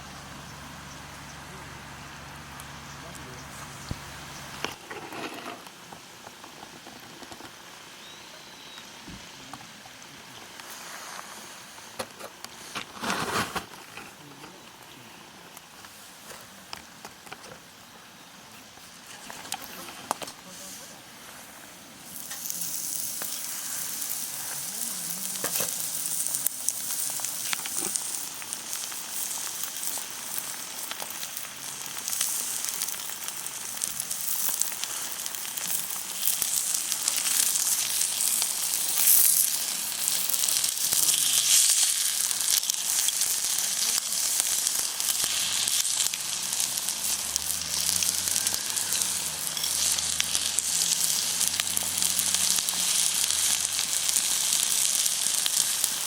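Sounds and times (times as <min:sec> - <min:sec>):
steak sizzling on stone: 0:15.9 - 0:56.0.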